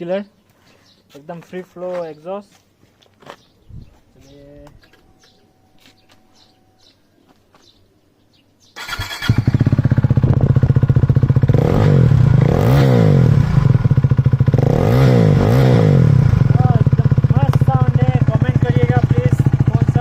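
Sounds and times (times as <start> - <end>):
motorcycle throttle blips: 8.8 - 20.0
motorcycle engine idling loudly: 9.0 - 20.0.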